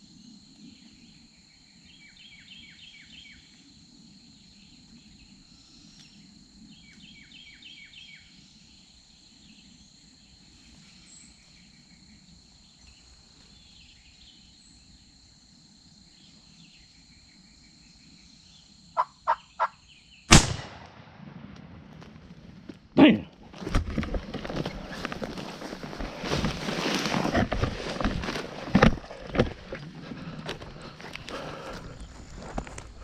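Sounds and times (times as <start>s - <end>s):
faint insect buzz: 0.0s - 20.3s
wild turkey calls: 19.0s - 19.9s
loud shotgun blast: 20.3s - 21.8s
thrashing and crackling in leaves: 23.5s - 33.0s.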